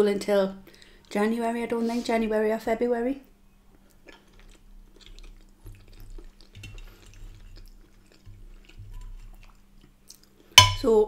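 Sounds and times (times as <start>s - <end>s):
close-miked chewing: 3.6s - 10.6s.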